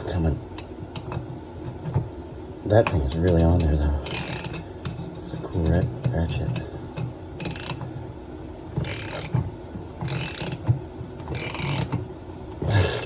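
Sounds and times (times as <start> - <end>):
hand ratchet clicking: 3.1 - 5.0, 7.4 - 7.8, 8.8 - 9.4, 10.0 - 10.6, 11.2 - 12.0, 12.6 - 13.0.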